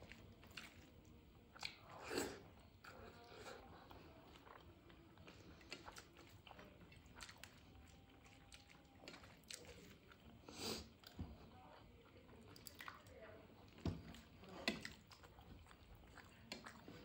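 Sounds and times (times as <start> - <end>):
person chewing rice: 0.0 - 17.0
fingers mixing rice on steel plate: 4.3 - 10.2, 13.6 - 17.0.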